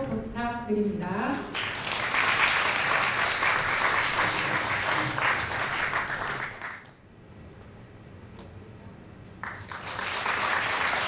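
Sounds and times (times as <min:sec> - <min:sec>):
audience applauding: 0:01.4 - 0:06.9, 0:09.4 - 0:11.0.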